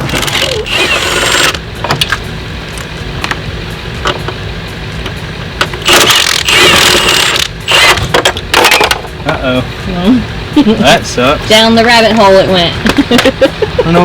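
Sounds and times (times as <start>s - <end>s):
steady low hum: 0.0s - 14.0s
sharp clicks and knocks: 1.4s - 3.4s.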